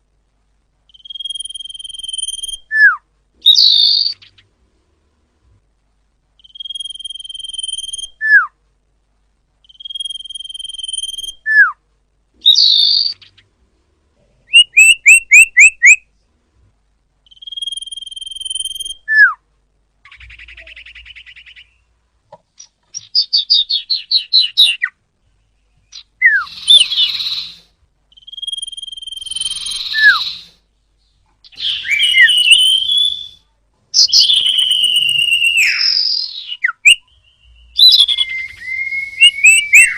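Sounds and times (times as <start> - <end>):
fast bird trill: 0.9 - 2.7, 6.4 - 8.2, 9.6 - 11.4, 14.5 - 16.0, 17.3 - 19.1, 25.9 - 30.6, 31.4 - 33.4, 34.0 - 39.9
bird whistling: 0.9 - 4.4, 6.4 - 8.5, 9.6 - 11.8, 12.4 - 13.4, 14.5 - 16.0, 17.3 - 19.4, 20.1 - 21.9, 23.0 - 24.9, 25.9 - 30.6, 31.4 - 33.4, 34.0 - 39.9
sharp bird chirps: 0.9 - 4.5, 6.4 - 8.4, 9.6 - 11.7, 12.4 - 13.5, 14.5 - 16.0, 17.2 - 19.3, 20.0 - 21.9, 22.6 - 33.4, 34.0 - 39.9.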